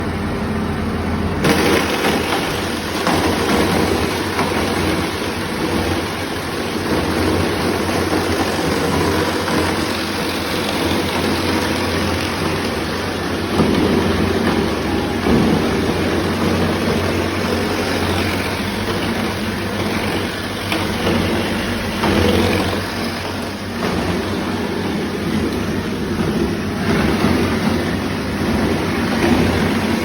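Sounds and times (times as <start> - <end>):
machine humming: 0.0 - 30.0.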